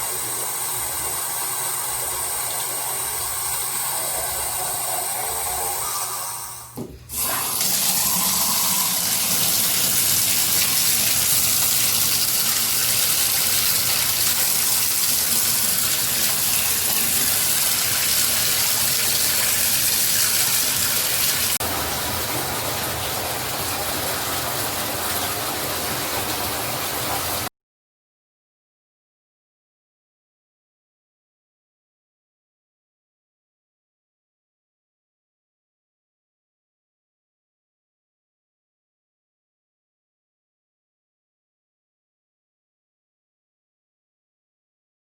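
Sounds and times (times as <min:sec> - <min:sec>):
water running from tap: 0:00.0 - 0:27.5.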